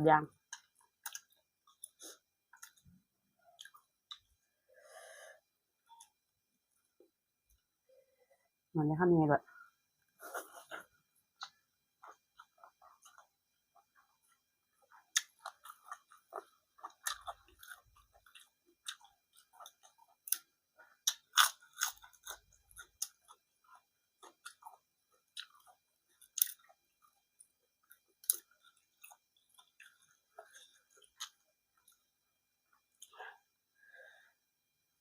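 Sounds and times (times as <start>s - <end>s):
person chewing food: 0.4s - 4.8s, 10.1s - 33.6s.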